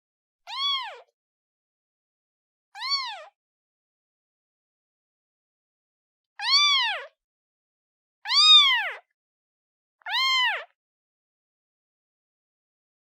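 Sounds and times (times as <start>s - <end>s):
kitten meowing: 0.5s - 1.1s, 2.8s - 3.4s, 6.4s - 7.1s, 8.3s - 9.0s, 10.1s - 10.8s.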